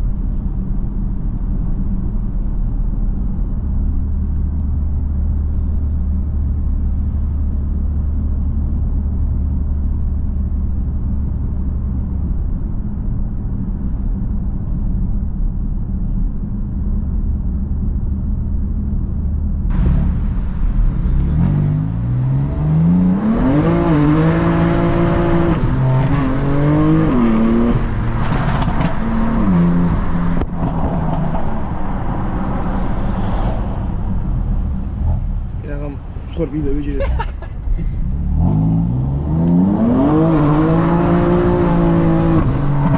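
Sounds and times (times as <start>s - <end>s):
car engine revving: 19.7s - 36.0s, 37.9s - 42.9s.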